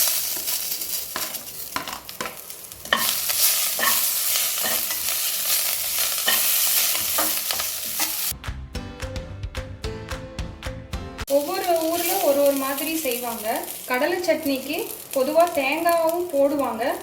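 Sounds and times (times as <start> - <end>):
spices sizzling in hot oil: 0.0 - 8.4, 11.3 - 17.0.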